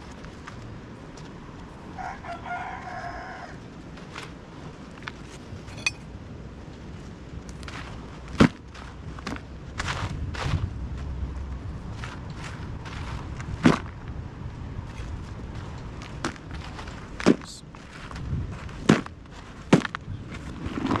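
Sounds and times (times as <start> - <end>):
rooster crowing: 1.9 - 3.6.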